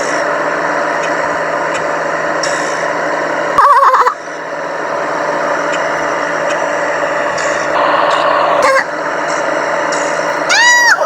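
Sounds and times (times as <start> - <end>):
road traffic rumble: 0.0 - 11.0
wavering high-pitched cry: 3.6 - 4.2, 8.1 - 8.9, 10.5 - 11.0.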